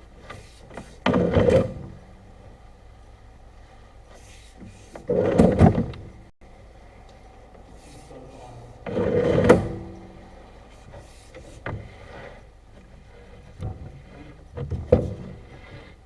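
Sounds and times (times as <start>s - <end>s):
knocks and clunks: 0.2s - 2.0s, 4.6s - 6.3s, 12.8s - 16.0s
rough scraping sound: 7.6s - 16.0s.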